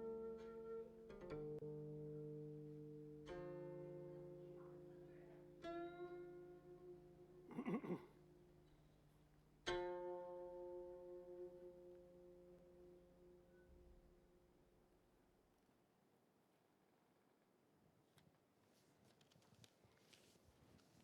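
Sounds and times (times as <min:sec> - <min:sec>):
plucked zither music: 0:00.0 - 0:07.5, 0:08.1 - 0:14.4.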